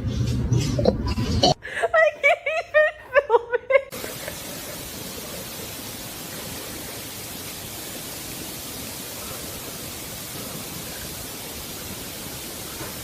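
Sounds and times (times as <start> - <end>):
steady hiss: 3.9 - 13.0.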